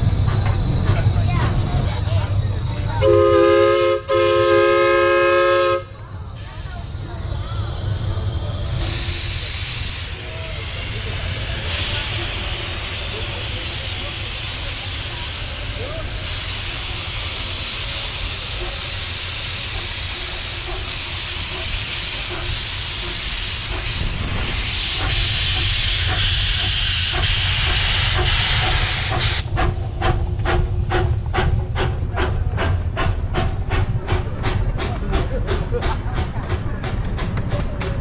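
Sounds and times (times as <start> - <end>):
steam hissing: 6.4 - 37.8
locomotive exhaust chuffs: 7.8 - 38.0.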